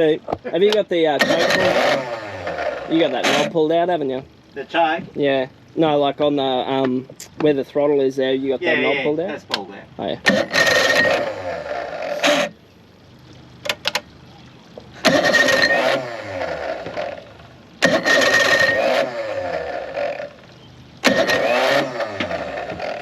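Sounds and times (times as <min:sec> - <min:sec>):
outboard motor cranking: 0:00.0 - 0:23.0.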